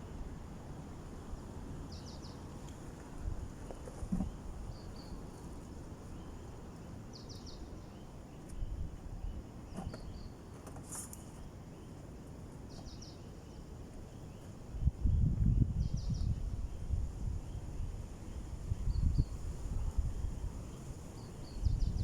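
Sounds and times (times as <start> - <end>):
wind rumbling on microphone: 14.7 - 22.0.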